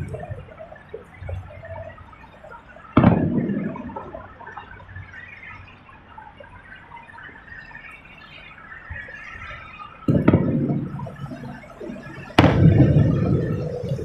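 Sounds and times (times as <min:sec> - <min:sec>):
fireworks bangs: 0:02.8 - 0:05.6, 0:10.0 - 0:14.0
low rumble: 0:10.1 - 0:14.0.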